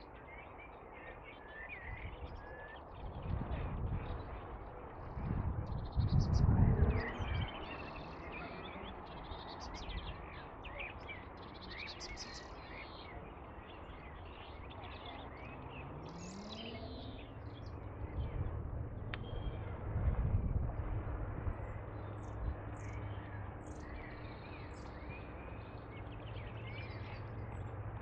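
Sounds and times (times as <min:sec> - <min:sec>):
small birds singing and chirping: 0:00.0 - 0:28.0
steady low rumble: 0:13.2 - 0:28.0
faint low hum rising in pitch: 0:14.6 - 0:28.0.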